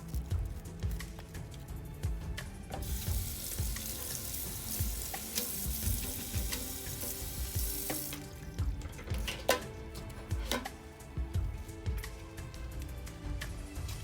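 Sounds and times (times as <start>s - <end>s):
food sizzling in hot oil: 2.8s - 9.7s.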